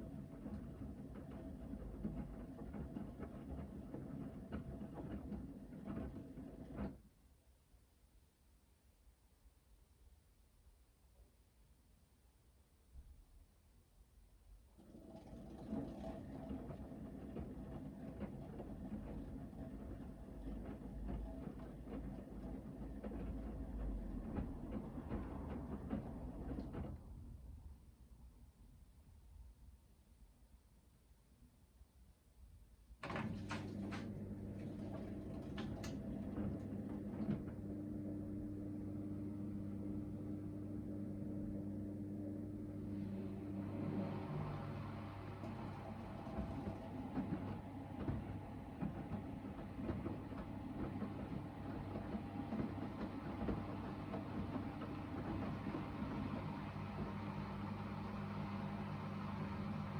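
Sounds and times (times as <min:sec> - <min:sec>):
wet laundry rumbling and knocking: 0:00.0 - 0:07.1, 0:14.7 - 0:27.7, 0:33.0 - 0:38.2, 0:42.9 - 0:59.9
washing machine humming: 0:00.0 - 0:07.2, 0:14.5 - 0:27.9, 0:33.0 - 0:59.9
washing machine drum turning: 0:33.0 - 0:37.8, 0:43.2 - 0:59.9.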